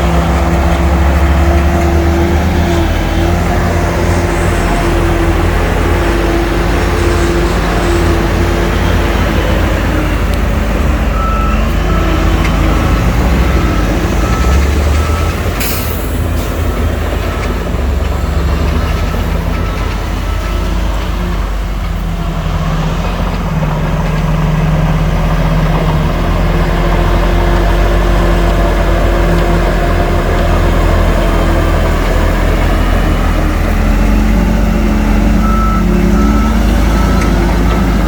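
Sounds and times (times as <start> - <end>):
truck backup alarm beeping: 0.0 - 22.2, 27.3 - 38.0
diesel engines running: 0.0 - 38.0
air brake hiss: 15.6 - 16.6.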